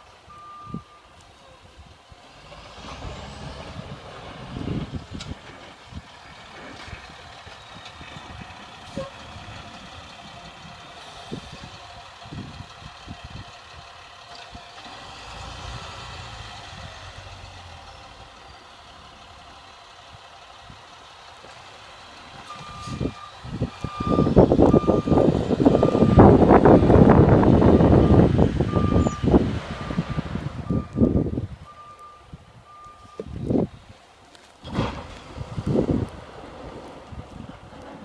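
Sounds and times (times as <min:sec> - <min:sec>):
reversing alarm beeping: 0:00.3 - 0:01.0, 0:22.5 - 0:26.4, 0:27.7 - 0:29.3, 0:29.9 - 0:33.3
truck engine running: 0:02.4 - 0:38.0.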